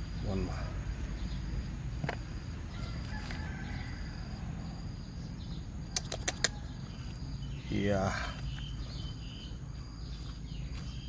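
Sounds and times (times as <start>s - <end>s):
insect chirping: 0.0s - 11.0s
sharp clicks: 5.9s - 6.6s.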